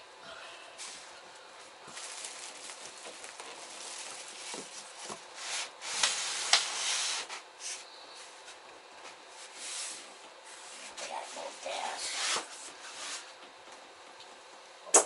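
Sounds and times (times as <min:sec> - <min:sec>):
cardboard scraping and rustling: 0:01.9 - 0:07.3.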